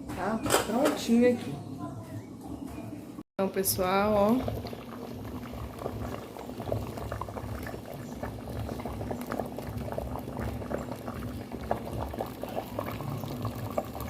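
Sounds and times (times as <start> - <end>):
stew bubbling in a pot: 3.4 - 14.0.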